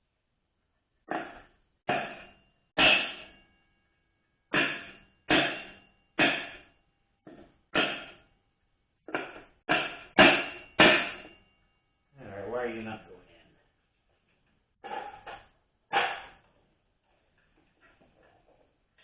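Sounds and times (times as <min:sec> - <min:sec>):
sharp metallic knocks: 0:01.1 - 0:03.8, 0:04.5 - 0:08.3, 0:09.1 - 0:11.8, 0:14.8 - 0:16.4.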